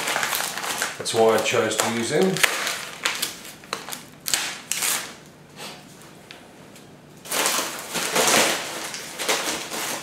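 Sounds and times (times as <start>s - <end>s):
packaging rustling and crinkling: 0.0s - 5.2s, 7.2s - 10.0s.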